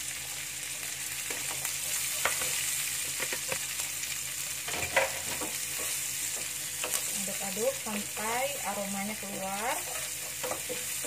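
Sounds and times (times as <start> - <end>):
vegetables sizzling in oil: 0.0 - 11.0
spatula scraping and knocking pan: 9.6 - 11.0.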